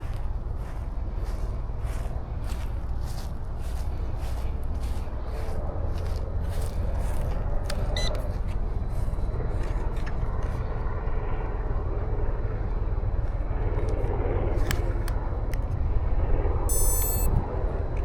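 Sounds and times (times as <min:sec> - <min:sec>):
steady low rumble: 0:00.0 - 0:18.0
model helicopter rotor whir: 0:16.7 - 0:17.3.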